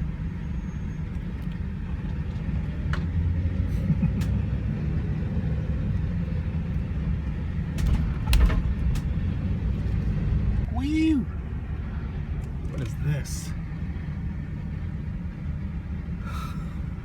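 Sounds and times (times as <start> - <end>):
road rumble: 0.0 - 17.0
van engine driving: 0.0 - 17.0
short knocks and rattles: 7.7 - 10.0.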